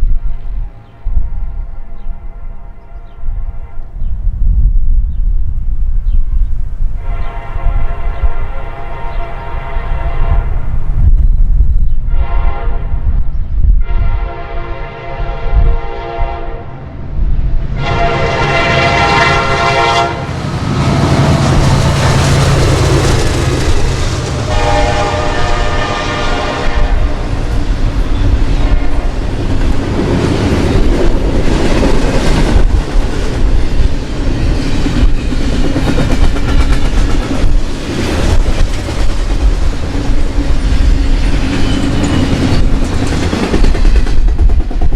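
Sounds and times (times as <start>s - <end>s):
train rumbling past: 0.0s - 44.9s
locomotive air horn blasts: 7.0s - 10.7s, 12.1s - 13.0s, 13.8s - 16.7s, 17.8s - 21.5s, 24.4s - 27.4s.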